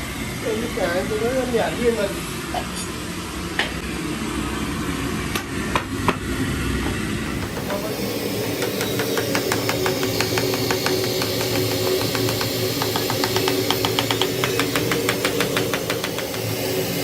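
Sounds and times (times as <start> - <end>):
motor running: 7.2 - 17.0.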